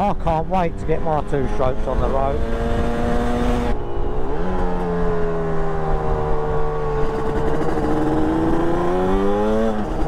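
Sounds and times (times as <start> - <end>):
two-stroke motorcycle engine: 4.6 - 10.0.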